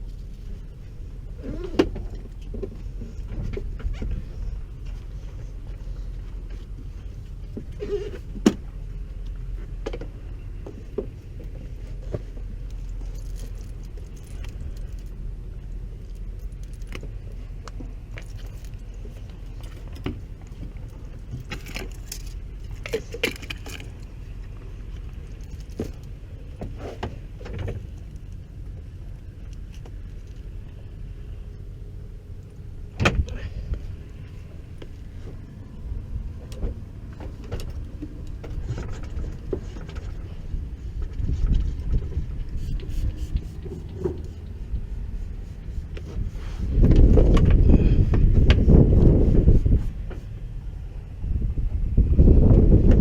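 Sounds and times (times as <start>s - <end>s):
steady low rumble: 0.0s - 53.0s
metal parts clinking and rattling: 12.7s - 15.2s, 21.2s - 24.3s.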